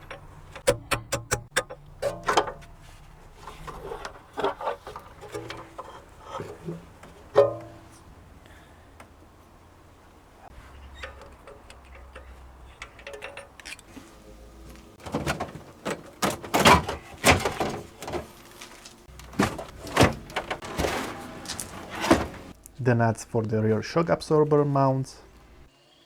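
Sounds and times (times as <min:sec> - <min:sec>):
tools and metal parts clattering: 0:00.0 - 0:08.2, 0:10.5 - 0:22.6.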